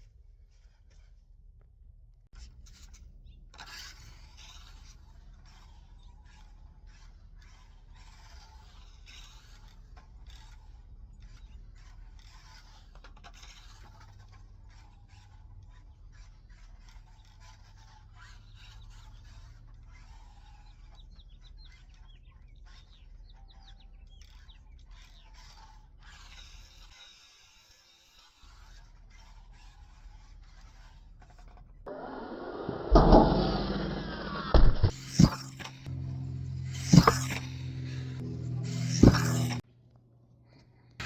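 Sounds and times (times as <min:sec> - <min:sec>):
scraping and rubbing: 0:27.5 - 0:39.6
steady low hum: 0:31.9 - 0:39.6.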